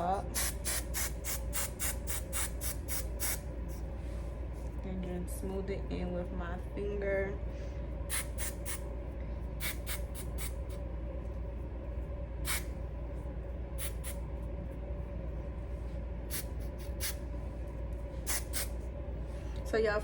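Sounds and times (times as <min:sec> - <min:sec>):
steady low hum: 0:00.0 - 0:20.0
aerosol spray hissing puffs: 0:00.3 - 0:03.4, 0:08.1 - 0:08.8, 0:09.6 - 0:10.6, 0:12.4 - 0:12.7, 0:13.8 - 0:14.2, 0:16.3 - 0:17.2, 0:18.2 - 0:18.8.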